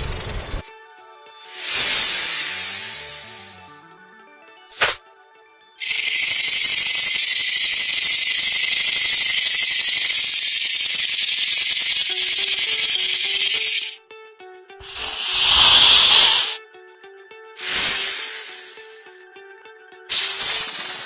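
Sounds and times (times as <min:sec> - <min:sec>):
snake hissing: 0:00.0 - 0:00.6, 0:01.4 - 0:03.6, 0:04.7 - 0:05.0, 0:05.8 - 0:14.0, 0:14.8 - 0:16.6, 0:17.6 - 0:19.0, 0:20.1 - 0:21.0
soft background music: 0:00.0 - 0:07.9, 0:14.0 - 0:21.0.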